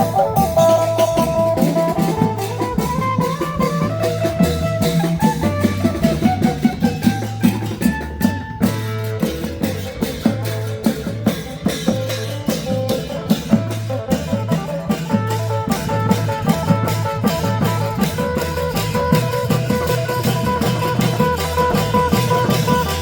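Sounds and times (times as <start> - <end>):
drums beating: 0.0 - 23.0
held melody: 0.0 - 23.0
pulsing bass line: 0.0 - 23.0.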